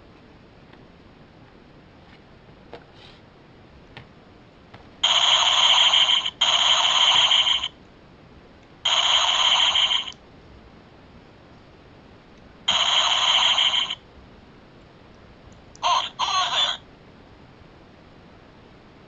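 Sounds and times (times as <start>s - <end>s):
harsh electronic buzzing blasts: 5.0s - 7.7s, 8.8s - 10.2s, 12.7s - 14.0s.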